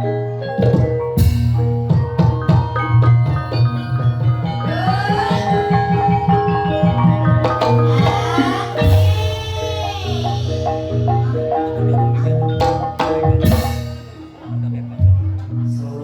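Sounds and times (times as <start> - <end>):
mallet-struck pitched notes: 0.0 - 16.0
deep held tone: 4.2 - 16.0.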